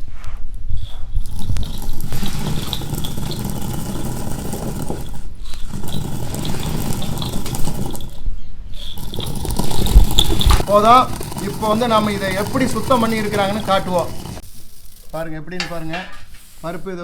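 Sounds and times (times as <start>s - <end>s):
split peas pouring: 0.8s - 8.2s, 8.8s - 17.0s.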